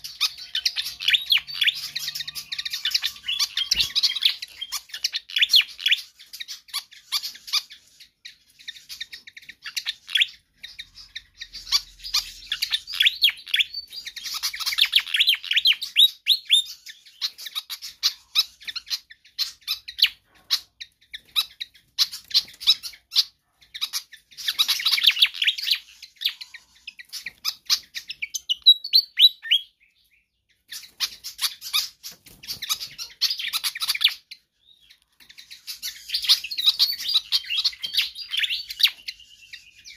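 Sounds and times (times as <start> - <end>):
flycatcher singing high chirps: 0.0 - 19.1.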